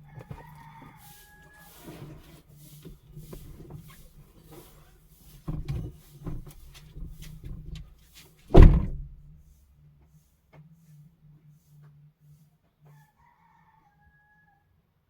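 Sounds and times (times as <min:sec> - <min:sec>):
rustling and light knocks: 0:00.0 - 0:10.8
car door shutting: 0:08.5 - 0:09.4.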